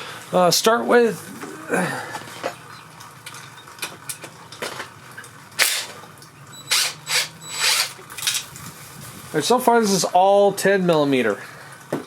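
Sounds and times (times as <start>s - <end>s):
wrench clicking and scraping: 6.7s - 8.5s.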